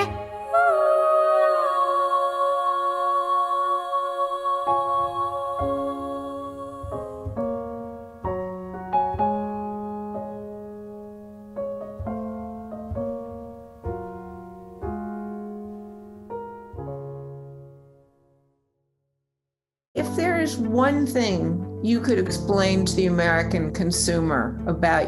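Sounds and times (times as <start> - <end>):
slow solo piano music: 4.9 - 18.0.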